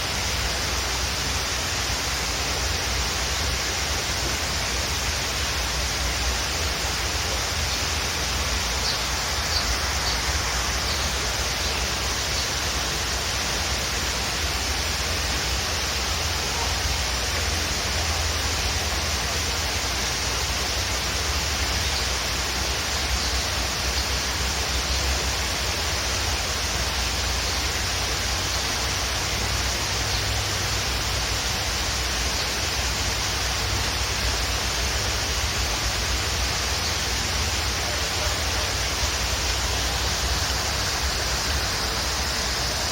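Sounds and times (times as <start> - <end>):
waterfall roaring: 0.0 - 42.9
faint bird chirps: 8.7 - 12.6.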